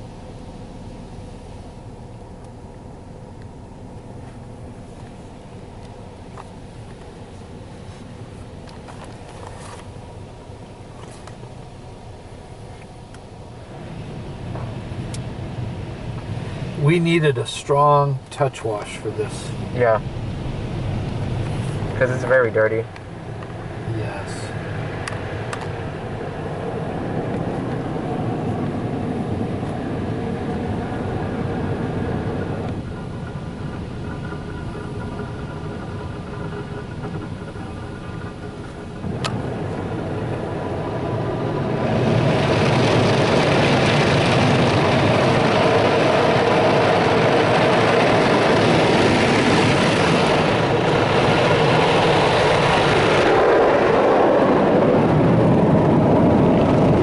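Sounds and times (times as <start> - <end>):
car wash mechanical rumble: 0.0 - 57.0
faint steady whine: 0.0 - 57.0
water spraying onto truck: 27.8 - 53.7.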